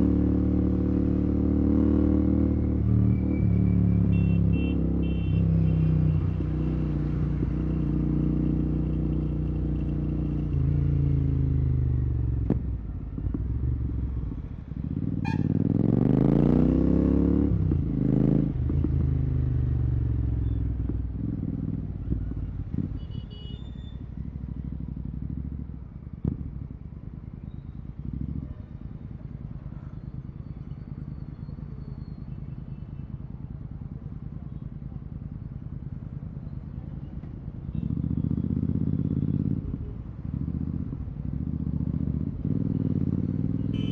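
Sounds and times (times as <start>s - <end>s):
motorcycle engine revving: 0.0s - 23.1s, 24.2s - 29.4s, 37.7s - 43.9s.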